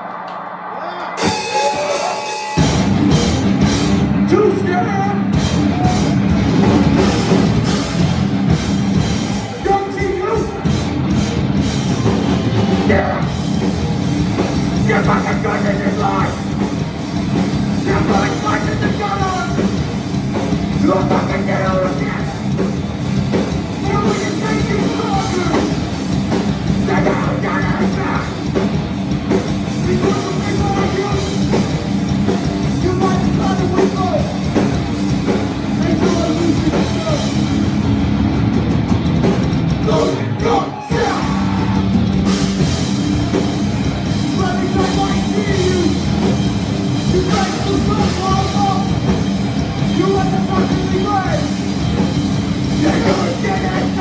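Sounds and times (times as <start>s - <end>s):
shouted vocals: 0.0s - 2.8s, 4.3s - 6.4s, 23.8s - 25.8s, 26.7s - 28.4s, 29.8s - 31.6s, 39.8s - 42.2s, 44.3s - 46.2s, 47.1s - 49.1s, 49.9s - 51.6s, 52.8s - 54.0s
punk band playing loudly: 0.1s - 54.0s.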